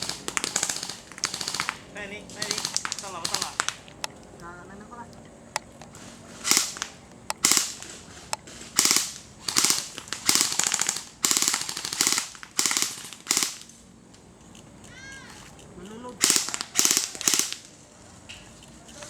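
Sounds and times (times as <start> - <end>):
airsoft guns firing: 0.0 - 4.2, 5.6 - 13.9, 16.2 - 17.9.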